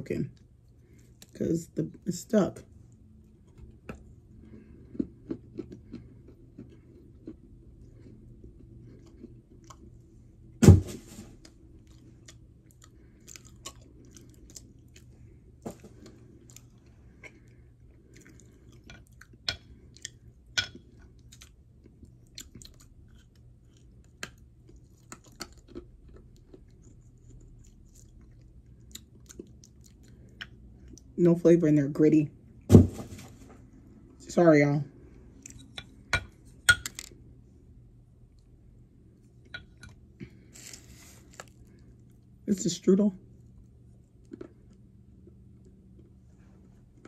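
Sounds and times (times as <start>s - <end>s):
person chewing crunchy clay: 2.9s - 10.6s, 11.4s - 31.1s, 39.2s - 42.4s, 43.5s - 47.0s.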